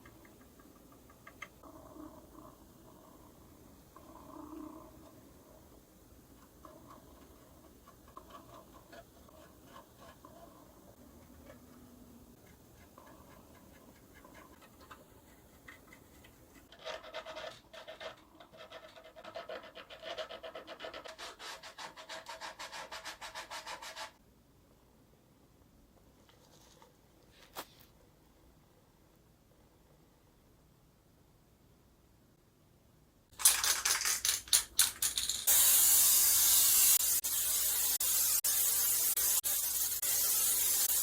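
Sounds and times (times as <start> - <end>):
faint taps and scrapes: 6.4 - 20.3, 26.0 - 28.0.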